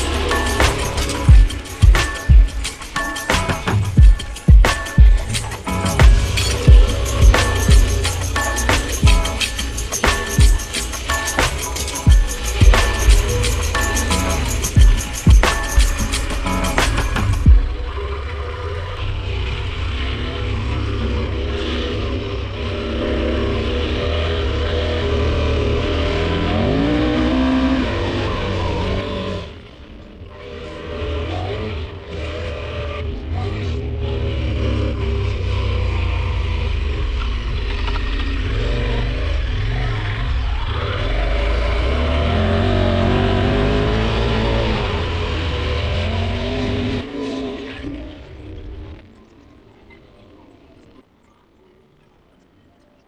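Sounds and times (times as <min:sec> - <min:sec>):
heavy low rumble: 0:00.0 - 0:28.7
motorcycle engine running: 0:00.0 - 0:29.4.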